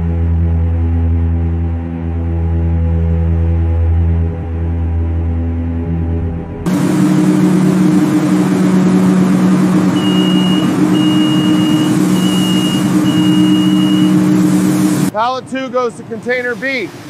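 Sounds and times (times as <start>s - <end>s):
heavy machinery humming: 4.7s - 17.0s
high warning beeps: 9.9s - 14.4s.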